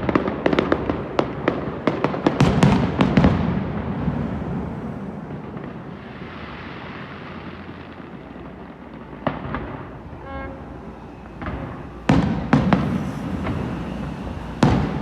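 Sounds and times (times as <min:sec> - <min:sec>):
firework sharp bang: 0:00.0 - 0:15.0
fireworks rumbling and crackling: 0:00.0 - 0:15.0.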